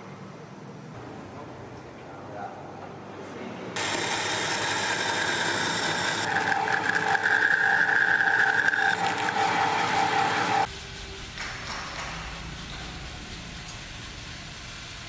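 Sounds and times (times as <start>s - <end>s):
machine whining: 3.8s - 11.2s.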